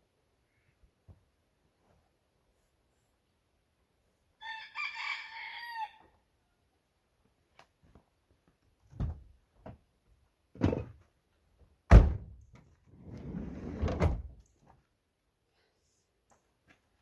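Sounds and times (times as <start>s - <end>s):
sliding door thunks and knocks: 11.9s - 12.3s, 13.0s - 14.4s
door slamming: 11.9s - 12.4s
sliding door rolling on track: 13.0s - 14.2s.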